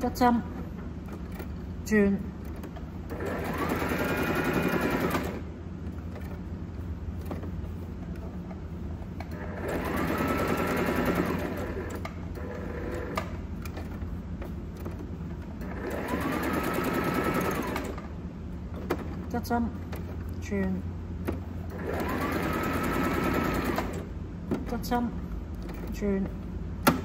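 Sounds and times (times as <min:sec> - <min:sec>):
sewing machine stitching: 0:02.5 - 0:05.5, 0:09.3 - 0:14.0, 0:15.6 - 0:18.1, 0:21.7 - 0:24.1.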